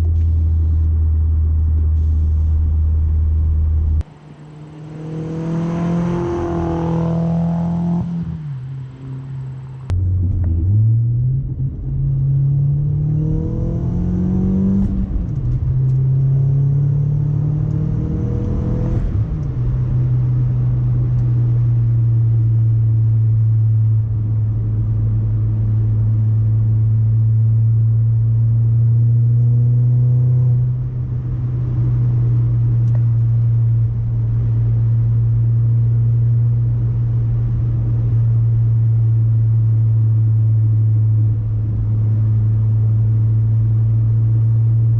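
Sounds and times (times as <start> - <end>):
car engine accelerating through gears: 0.0 - 22.8, 23.9 - 44.9.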